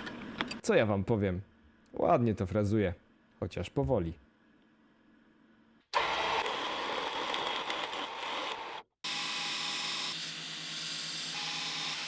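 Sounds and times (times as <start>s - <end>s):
mill spindle and cutting noise: 6.0s - 12.0s.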